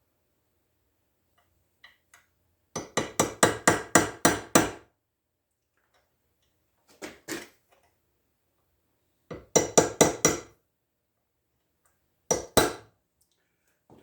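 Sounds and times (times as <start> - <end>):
hammer tapping chisel on metal: 2.8 - 4.8, 9.3 - 10.6.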